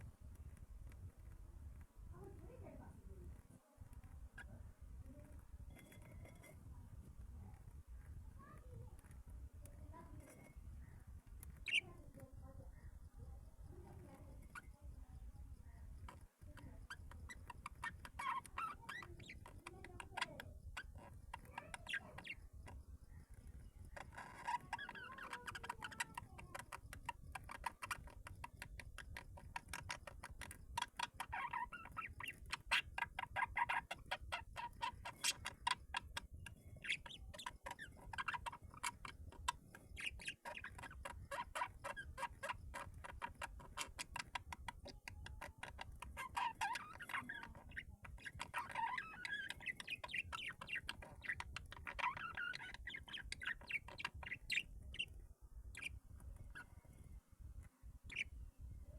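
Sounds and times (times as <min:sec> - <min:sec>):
fast patter of clicks: 0:00.0 - 0:12.7.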